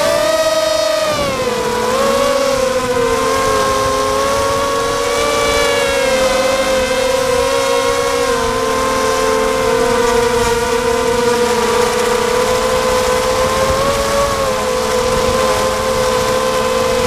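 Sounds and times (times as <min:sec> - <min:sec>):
drone motors whining: 0:00.0 - 0:17.0
wind on microphone: 0:00.0 - 0:17.0.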